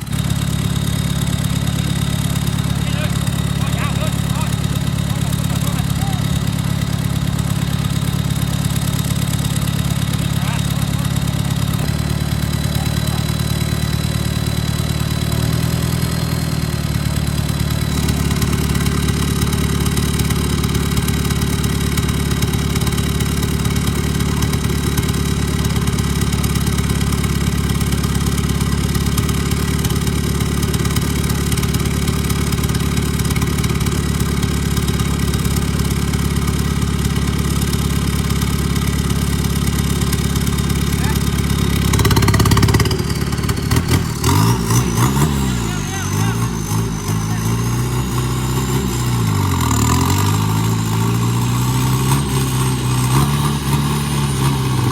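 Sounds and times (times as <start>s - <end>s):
off-road vehicle engine running: 0.0s - 54.9s.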